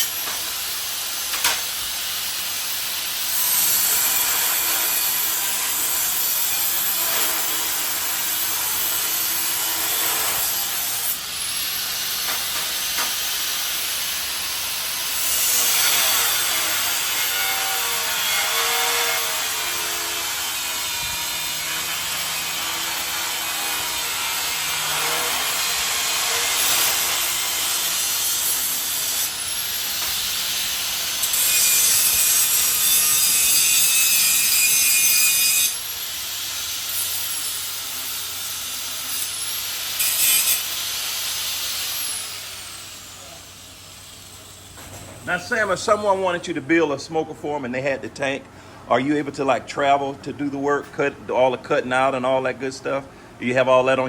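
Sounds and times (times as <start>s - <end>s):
power tool rasping on steel: 0.0s - 44.2s.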